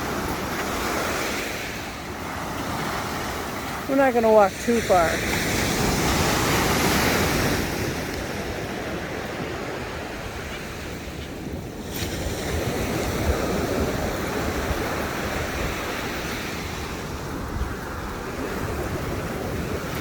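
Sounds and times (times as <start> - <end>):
ocean surf breaking: 0.0 - 20.0
wind buffeting microphone: 0.0 - 20.0.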